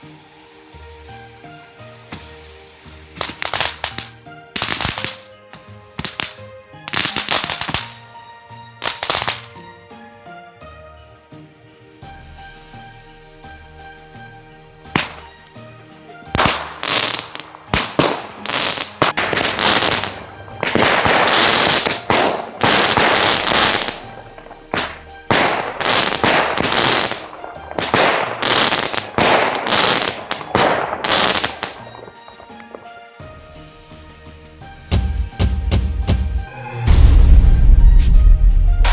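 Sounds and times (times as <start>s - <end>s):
crackling hiss: 0.0s - 8.2s, 8.8s - 9.6s, 14.8s - 33.0s
music: 0.0s - 38.9s
fireworks shots crackling: 1.4s - 8.1s, 8.8s - 9.6s, 14.9s - 15.6s, 16.3s - 33.0s.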